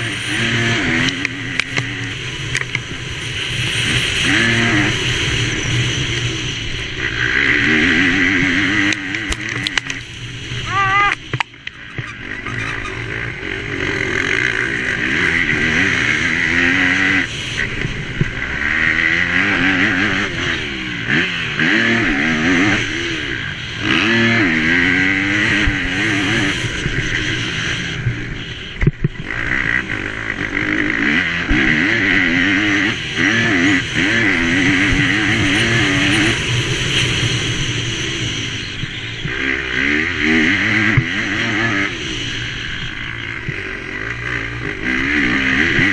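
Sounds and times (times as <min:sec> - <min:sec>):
motocross bike engine revving: 0:00.0 - 0:45.9.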